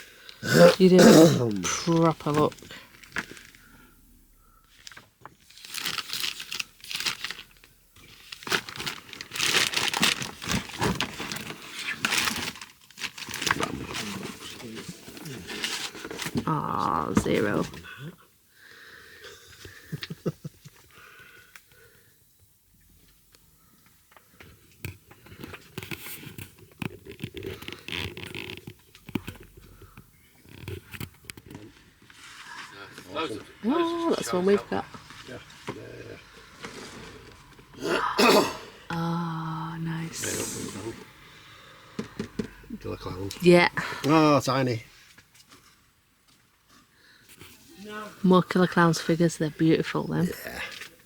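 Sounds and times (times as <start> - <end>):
plastic bags crinkling: 4.4 - 16.6
rustling and scraping: 8.0 - 17.8, 23.0 - 33.6, 34.2 - 37.8.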